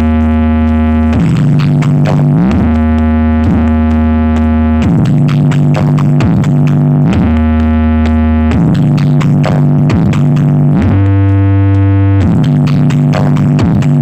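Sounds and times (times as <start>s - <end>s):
electronic dance music: 0.0s - 14.0s.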